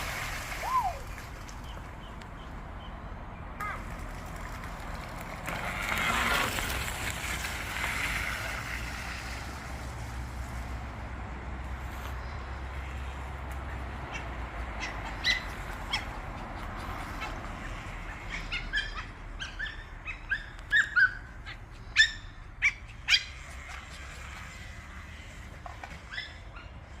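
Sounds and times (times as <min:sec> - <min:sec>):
small dog yapping: 0:14.1 - 0:24.0.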